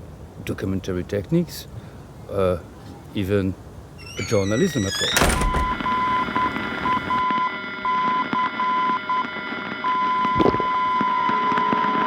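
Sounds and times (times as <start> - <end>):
radio hum and whine: 5.7 - 12.0.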